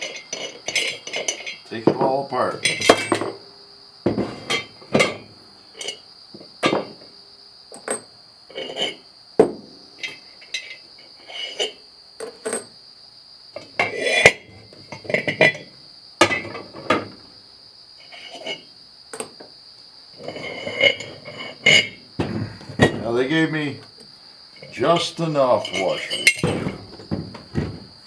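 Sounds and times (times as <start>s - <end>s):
metal parts clanking: 0.0s - 3.4s, 4.1s - 6.0s, 20.2s - 23.3s, 24.6s - 27.7s.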